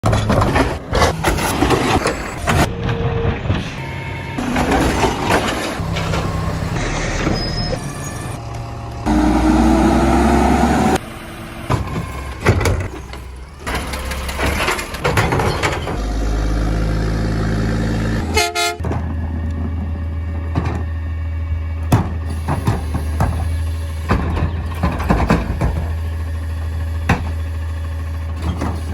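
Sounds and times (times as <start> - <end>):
truck engine running: 0.0 - 28.9
hydraulic packer whine: 0.3 - 28.9
short horn toot: 18.2 - 18.8.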